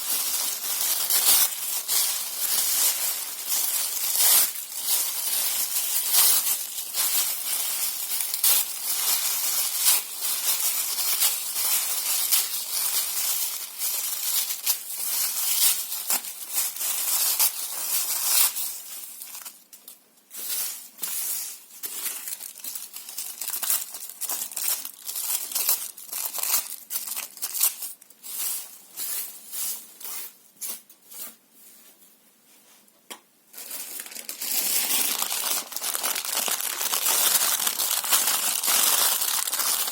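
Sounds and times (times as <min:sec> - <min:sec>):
paper tearing and crumpling: 0:33.6 - 0:39.9.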